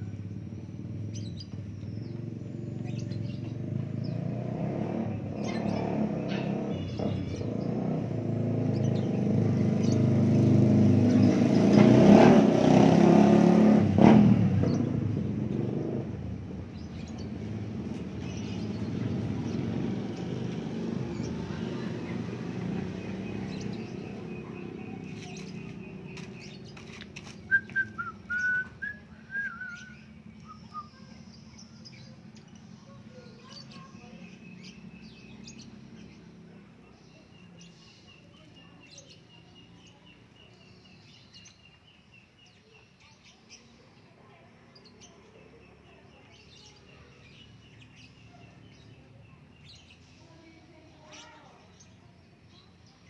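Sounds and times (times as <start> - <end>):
vehicle passing: 0.0 - 41.1.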